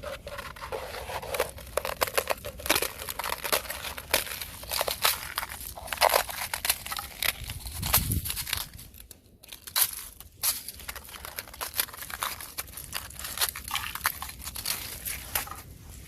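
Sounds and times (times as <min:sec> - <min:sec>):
thin ice crunching and cracking: 0:00.0 - 0:16.0.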